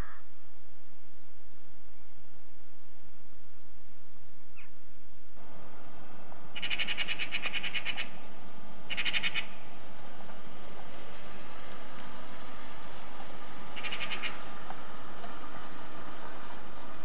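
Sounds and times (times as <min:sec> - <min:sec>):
bird rattling calls: 0:06.5 - 0:08.2, 0:08.9 - 0:09.7, 0:13.7 - 0:14.5.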